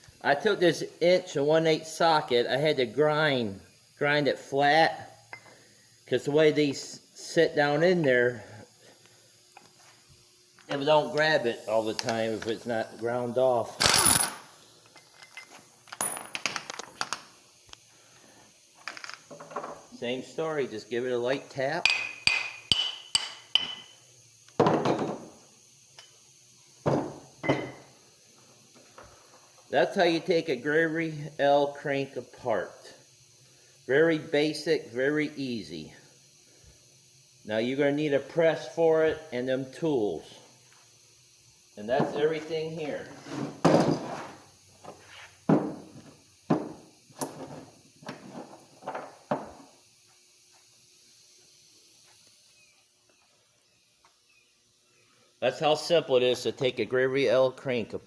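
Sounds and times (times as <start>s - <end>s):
metal parts knocking and clunking: 13.9s - 17.2s.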